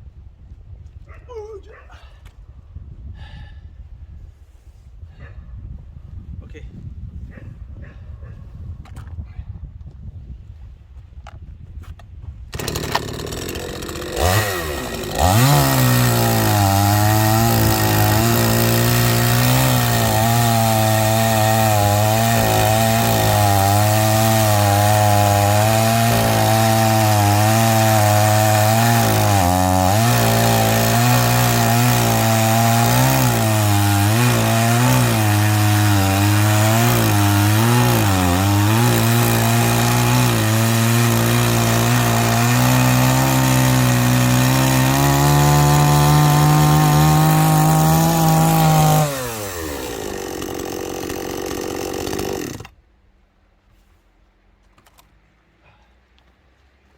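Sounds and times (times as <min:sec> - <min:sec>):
chainsaw engine running: 0:12.5 - 0:52.8
chainsaw pull-start: 0:12.5 - 0:52.8.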